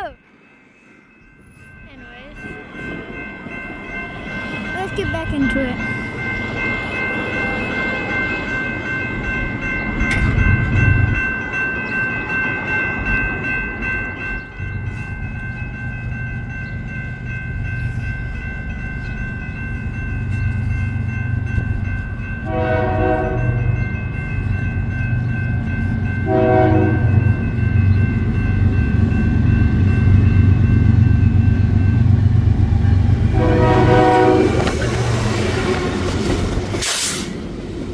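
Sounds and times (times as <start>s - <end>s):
freight train rumbling: 0.0s - 37.9s
locomotive horn blasts: 22.4s - 23.8s, 26.2s - 27.2s, 33.3s - 34.8s.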